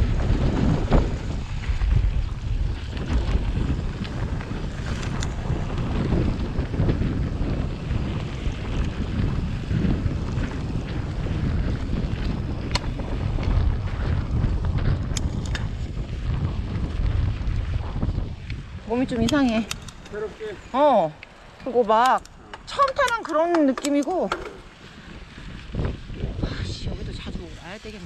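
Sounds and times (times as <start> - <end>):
trail noise rumble: 0.0 - 28.0
wind buffeting microphone: 0.0 - 28.0
sharp clicks: 18.5 - 20.3, 21.1 - 24.6.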